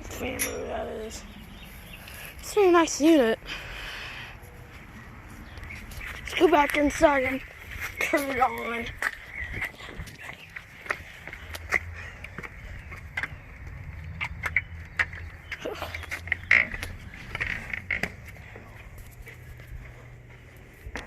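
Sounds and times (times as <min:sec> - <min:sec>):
footsteps: 0:04.4 - 0:21.0.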